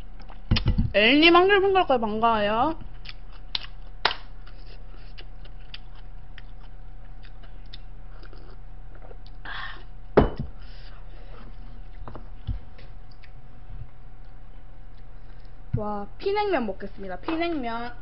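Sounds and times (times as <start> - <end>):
faint electrical hum: 0.0 - 18.0
person chewing food: 2.8 - 9.9, 10.8 - 15.7.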